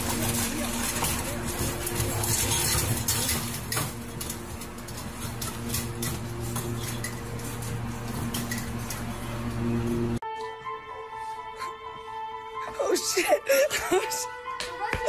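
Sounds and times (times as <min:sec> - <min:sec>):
metal bowl rattling against cage: 0:00.0 - 0:09.4
steady low hum: 0:00.0 - 0:10.2.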